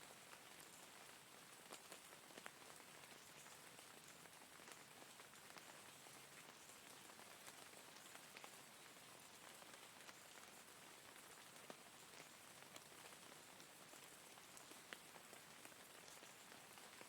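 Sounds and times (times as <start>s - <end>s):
faint rain ticking: 0.0s - 17.0s.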